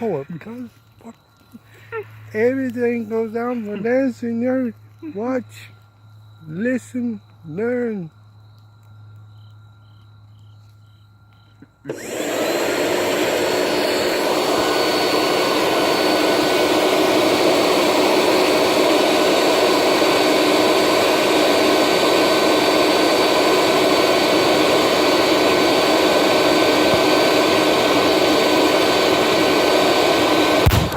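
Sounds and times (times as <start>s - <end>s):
blower blasting air: 11.9s - 30.9s.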